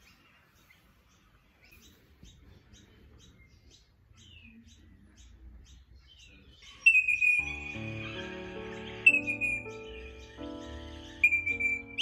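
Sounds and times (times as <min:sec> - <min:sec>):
birds chirping: 0:00.0 - 0:12.0
loud steady high tone: 0:11.2 - 0:12.0.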